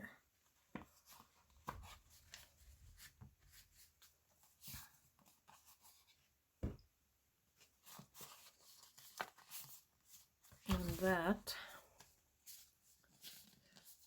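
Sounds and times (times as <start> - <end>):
paper rustling: 7.6 - 11.3, 11.9 - 14.0.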